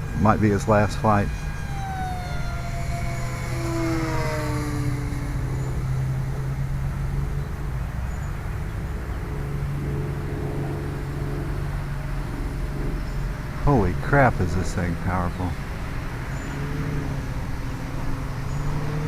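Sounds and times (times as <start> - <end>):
model airplane motor droning: 0.0 - 19.0.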